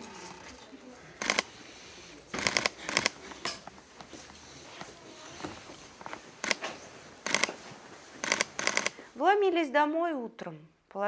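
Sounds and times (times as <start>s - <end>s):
crisp rustling clicks: 1.0s - 9.2s.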